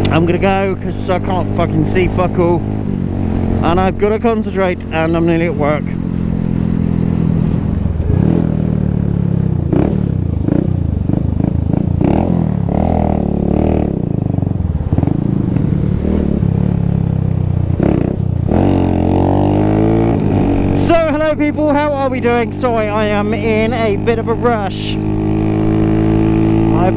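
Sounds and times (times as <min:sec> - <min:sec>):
motorcycle engine accelerating: 0:00.0 - 0:26.9.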